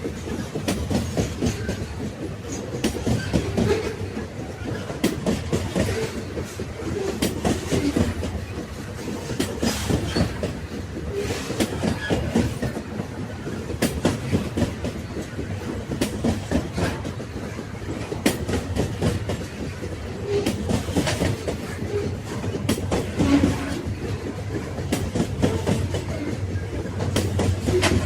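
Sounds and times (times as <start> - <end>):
train carriages rumbling on track: 0.0 - 28.0
wheels clicking on rails: 0.0 - 28.0.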